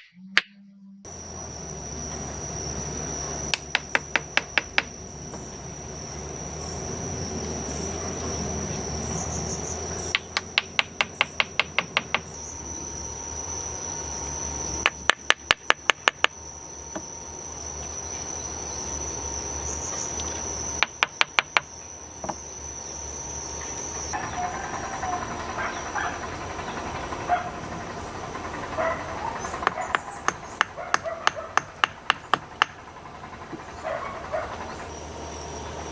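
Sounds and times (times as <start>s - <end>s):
high-pitched insect drone: 1.0s - 35.9s
sharp knocks: 10.1s - 12.3s.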